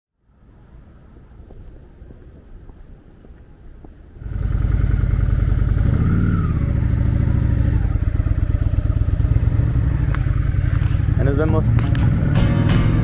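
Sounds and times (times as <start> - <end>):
motorcycle engine revving: 4.2 - 13.0
motorcycle engine running: 4.2 - 13.0.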